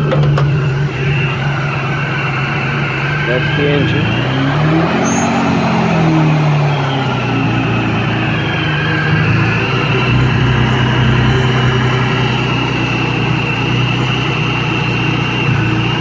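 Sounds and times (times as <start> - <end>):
car engine idling: 0.0 - 16.0
faint high supercharger whine: 0.0 - 16.0.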